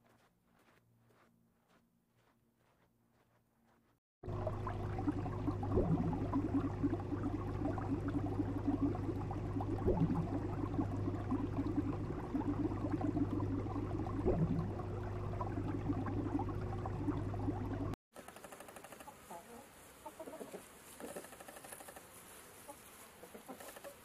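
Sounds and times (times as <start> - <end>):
aquarium water bubbling: 4.2 - 18.0
pump humming: 4.2 - 18.0.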